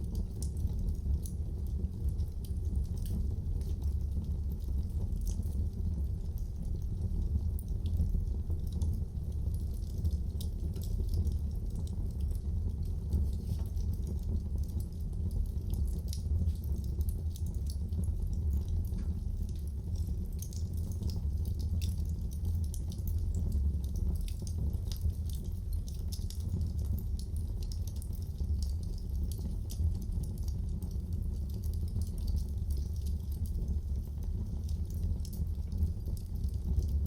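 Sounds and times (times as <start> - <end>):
fire low rumble: 0.0 - 37.0
wood fire crackling and popping: 0.0 - 37.0.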